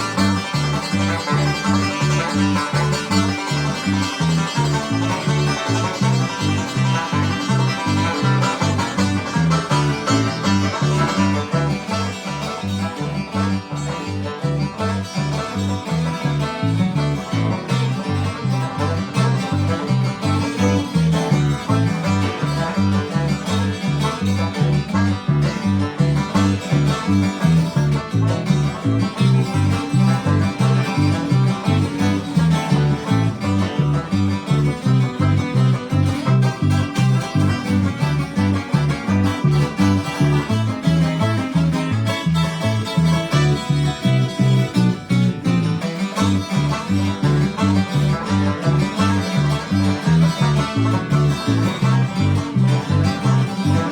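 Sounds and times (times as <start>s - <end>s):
banjo picking: 0.0s - 53.9s
bass line: 0.0s - 53.9s
guitar: 0.0s - 53.9s.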